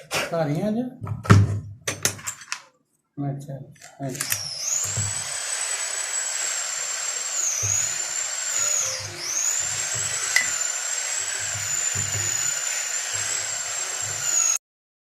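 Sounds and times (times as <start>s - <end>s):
rotary tool whining: 3.8s - 14.6s.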